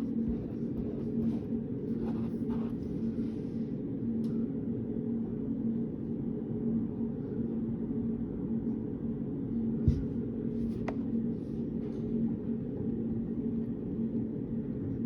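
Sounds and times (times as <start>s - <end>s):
faint scratching or rustling: 0.0s - 3.2s
low room hum droning: 0.0s - 15.0s.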